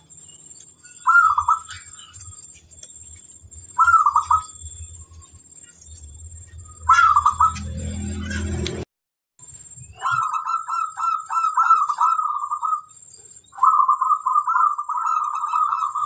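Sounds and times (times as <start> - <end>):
dove cooing: 1.0 - 2.1, 3.8 - 4.6, 6.8 - 7.7, 10.0 - 12.9, 13.6 - 16.0
low hum: 2.2 - 8.9.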